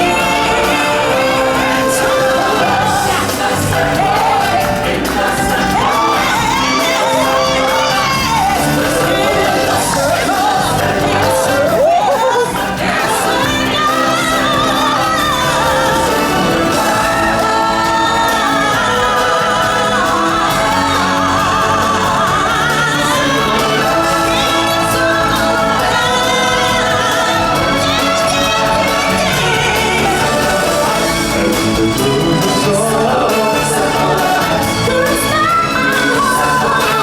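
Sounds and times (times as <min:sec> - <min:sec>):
group of singers holding notes: 0:00.0 - 0:37.0
musical accompaniment: 0:00.0 - 0:37.0.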